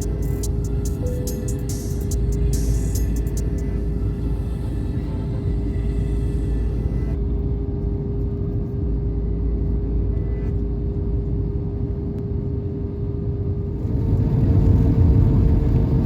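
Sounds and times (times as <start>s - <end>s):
low rumble: 0.0s - 12.0s
airliner engine drone: 0.0s - 16.0s.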